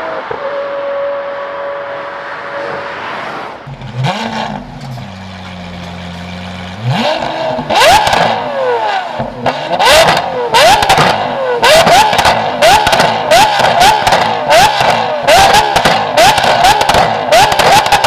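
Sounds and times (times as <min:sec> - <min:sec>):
car engine revving: 0:00.0 - 0:18.0
exhaust cracks and pops: 0:12.0 - 0:18.0.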